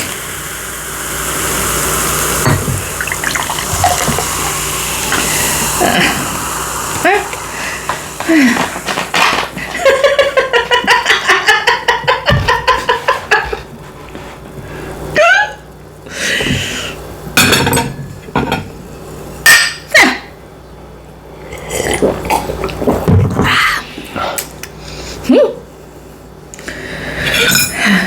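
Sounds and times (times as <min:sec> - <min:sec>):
cutlery clinking on dishes: 0:27.3 - 0:27.9.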